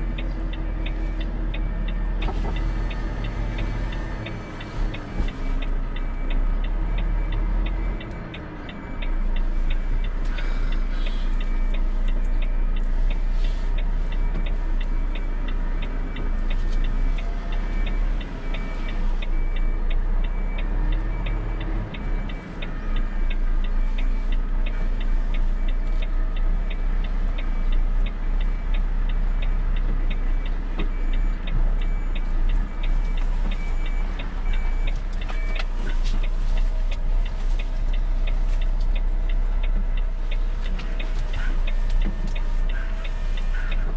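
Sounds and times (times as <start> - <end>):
truck diesel engine rumbling: 0.0 - 43.9
turn signal ticking: 0.0 - 43.9.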